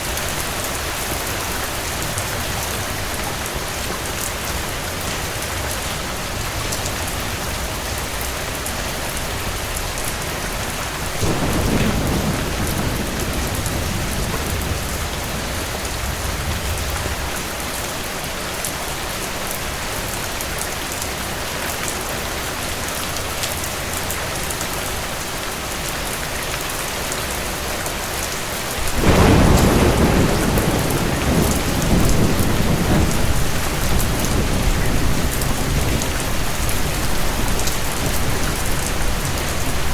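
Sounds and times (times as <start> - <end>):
heavy rain falling: 0.0 - 39.9
thunder rumbling: 0.1 - 17.9, 28.8 - 39.9.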